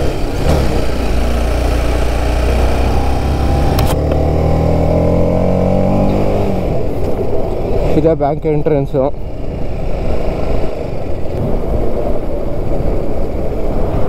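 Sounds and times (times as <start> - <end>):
motorcycle engine accelerating: 0.0 - 14.0
sharp click: 3.7 - 4.3
wind on microphone: 9.2 - 14.0.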